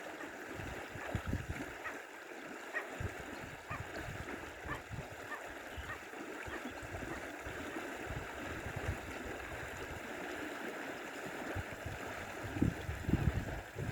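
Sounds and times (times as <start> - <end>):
stream water flowing: 0.0 - 13.9.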